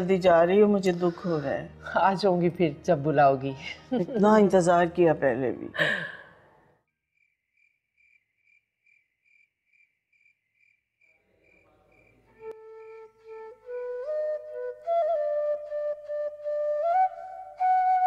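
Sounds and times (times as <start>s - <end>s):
crickets chirping: 7.1s - 13.1s
bamboo flute playing held notes: 12.4s - 18.0s.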